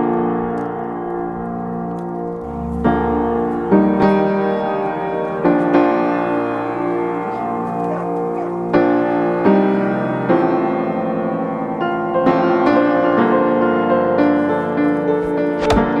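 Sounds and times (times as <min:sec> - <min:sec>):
piano chords: 0:00.0 - 0:16.0
sharp click: 0:15.2 - 0:16.0.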